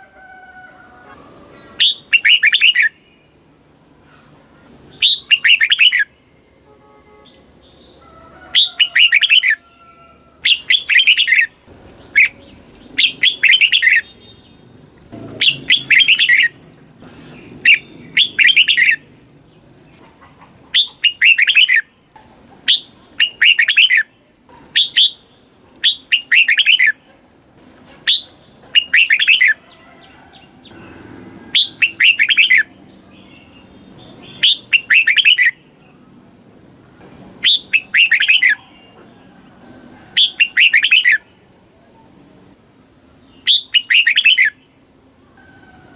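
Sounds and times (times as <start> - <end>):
bird singing warbled notes: 1.7 - 3.3, 4.9 - 6.1, 10.4 - 20.0, 20.8 - 22.0, 28.1 - 29.6, 30.7 - 35.6, 37.4 - 38.7, 43.4 - 44.6.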